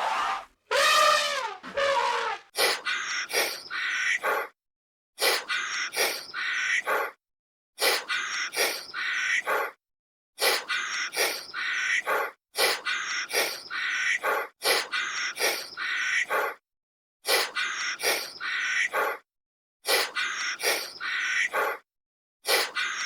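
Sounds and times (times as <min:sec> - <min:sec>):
harsh rasping animal calls: 0:00.0 - 0:02.5.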